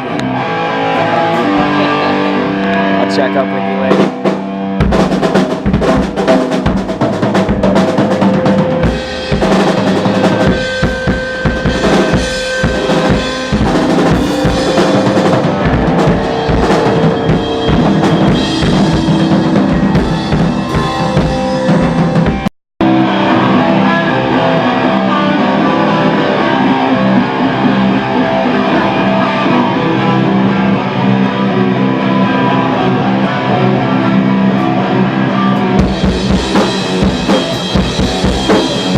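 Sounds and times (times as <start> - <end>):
guitar: 0.0 - 38.9
rock band playing: 0.0 - 38.9
drum kit kick and snare: 3.9 - 22.5, 35.8 - 38.9.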